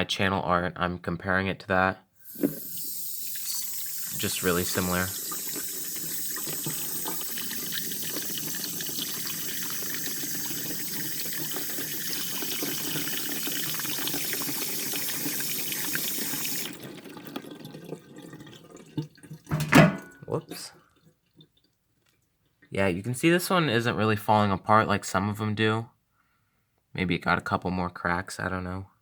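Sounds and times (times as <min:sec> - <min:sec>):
water running through toilet: 0:02.2 - 0:22.7
water drips and trickles: 0:02.3 - 0:22.7.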